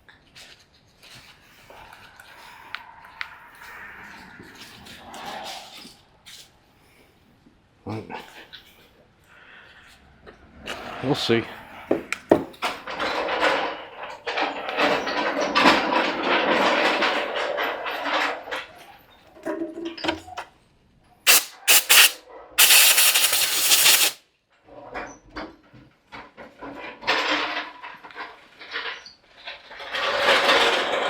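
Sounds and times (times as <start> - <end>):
hiss burst like spray: 21.3 - 24.2.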